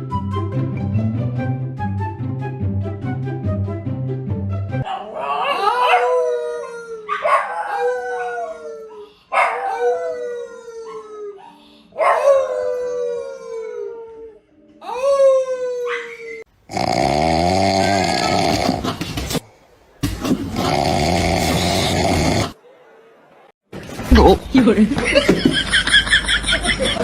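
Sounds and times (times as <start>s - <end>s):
dog howling: 4.8s - 16.5s.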